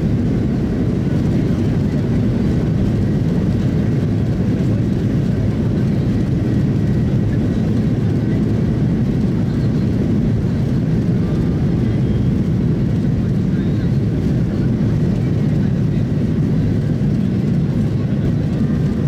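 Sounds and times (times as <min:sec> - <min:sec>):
airliner cabin engine rumble: 0:00.0 - 0:19.0.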